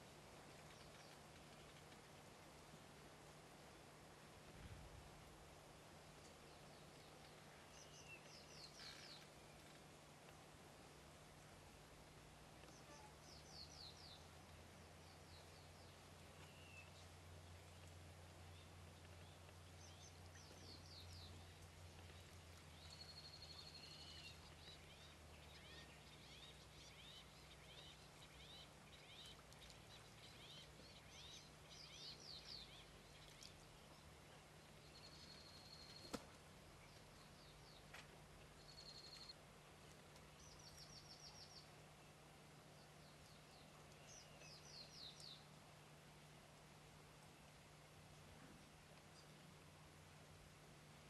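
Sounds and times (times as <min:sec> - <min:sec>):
birdsong: 0:00.0 - 0:02.1, 0:06.2 - 0:09.9, 0:12.6 - 0:45.5.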